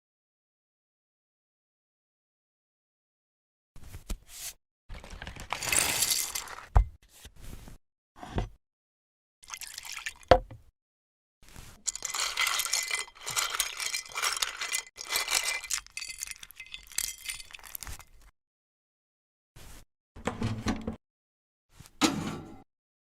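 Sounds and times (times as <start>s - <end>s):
small hard objects clinking: 5.0s - 6.7s, 11.8s - 18.3s.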